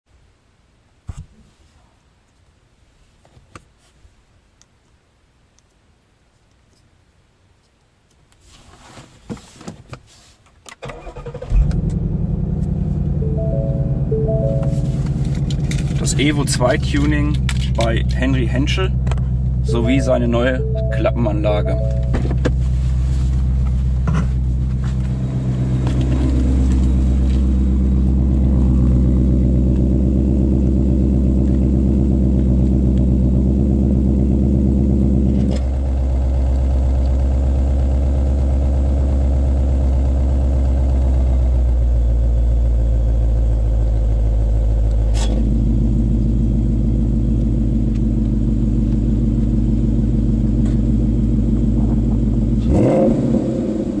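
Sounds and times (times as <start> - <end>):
car engine idling: 11.6 - 52.7.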